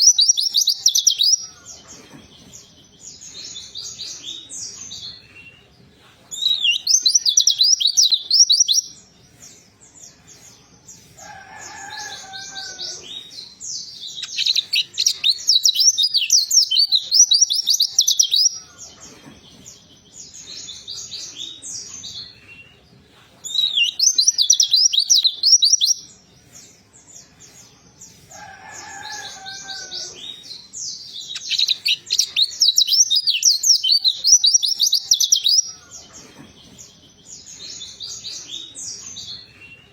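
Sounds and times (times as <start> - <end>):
bird twittering song: 0.0 - 22.8, 23.4 - 39.9.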